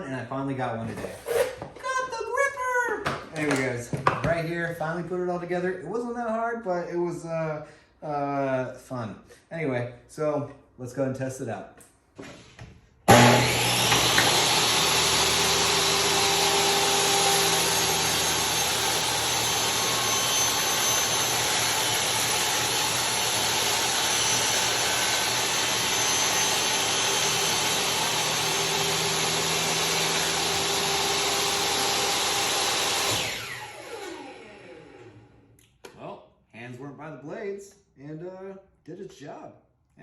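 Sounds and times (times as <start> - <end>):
table saw ripping a board: 0.9 - 1.7, 13.1 - 34.5.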